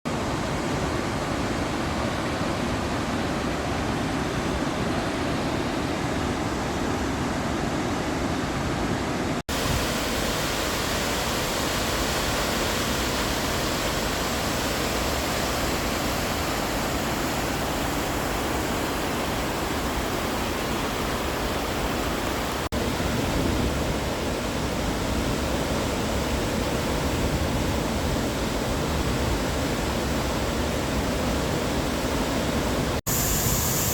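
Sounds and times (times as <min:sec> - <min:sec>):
waterfall roaring: 0:00.1 - 0:33.9.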